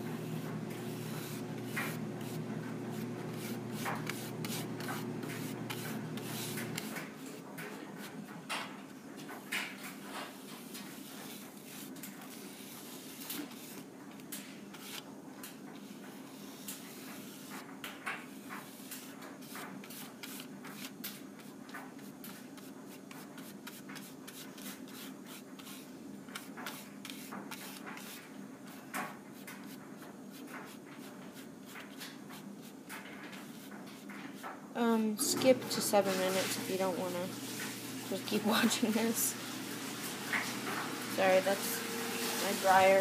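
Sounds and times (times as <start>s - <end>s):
clothes dryer humming: 0.0s - 10.1s, 34.8s - 43.0s.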